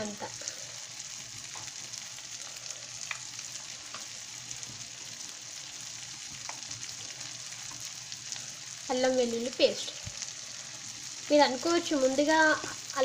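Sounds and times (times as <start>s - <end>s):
curry sizzling in a pan: 0.0s - 13.0s
faint pops and crackles: 1.4s - 1.7s, 3.0s - 4.8s, 6.3s - 7.8s.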